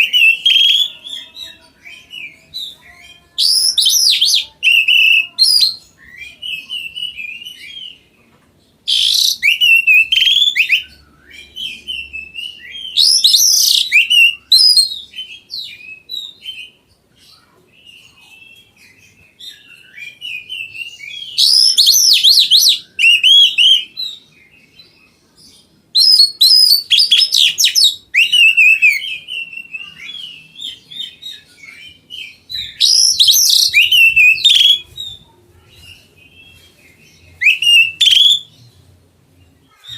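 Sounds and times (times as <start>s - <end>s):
bird singing whistled notes: 3.4s - 8.0s, 8.9s - 16.7s, 19.4s - 24.8s, 26.0s - 35.2s, 36.5s - 38.6s.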